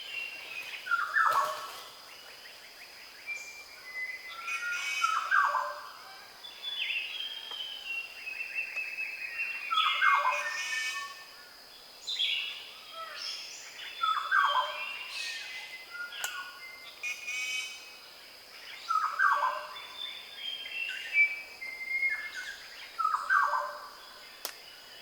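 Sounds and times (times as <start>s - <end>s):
birds whistling and chirping: 3.2s - 5.8s, 6.6s - 11.2s, 13.2s - 17.8s, 18.8s - 23.8s.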